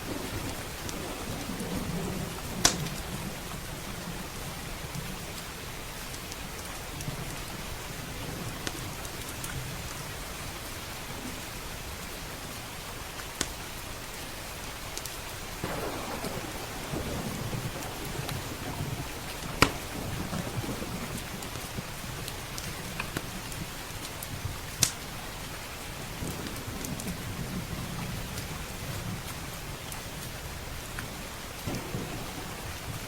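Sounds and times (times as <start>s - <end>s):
log fire popping: 0.0s - 4.0s, 14.9s - 33.0s
low roll of thunder: 0.0s - 5.8s, 15.6s - 24.6s, 26.0s - 29.9s, 30.5s - 33.0s
heavy rain: 0.0s - 33.0s.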